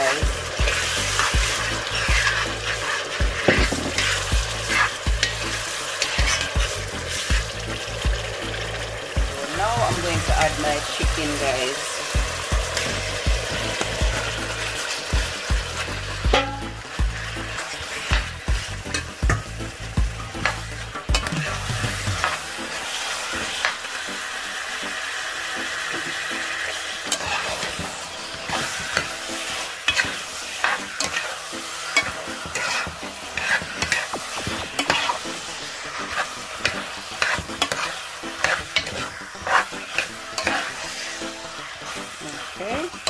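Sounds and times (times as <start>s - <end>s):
spatula scraping metal pot: 0.0s - 7.4s, 27.1s - 35.3s, 35.9s - 41.2s
chicken sizzling in hot oil: 0.0s - 43.0s.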